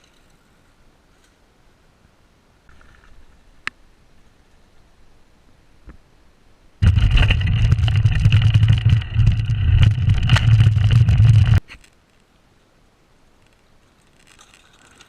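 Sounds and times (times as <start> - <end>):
bike clicks and rattles: 6.8 - 12.0, 13.5 - 15.0
mountain bike tyres on trail: 6.8 - 12.4.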